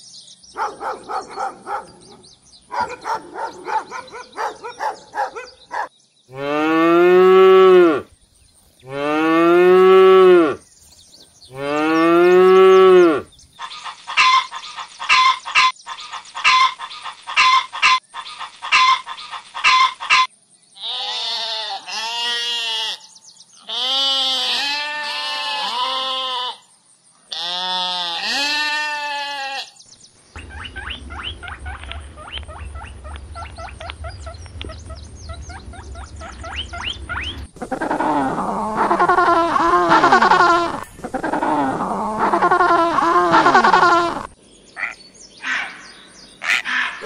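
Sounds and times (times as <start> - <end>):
hens clucking: 13.6 - 20.3, 30.4 - 45.0
sheep bleating: 20.8 - 26.6, 27.3 - 29.8
low rumble: 30.4 - 43.3.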